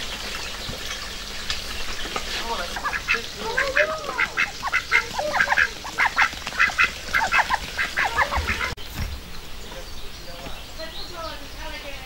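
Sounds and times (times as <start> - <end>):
ducks quacking: 1.7 - 8.8.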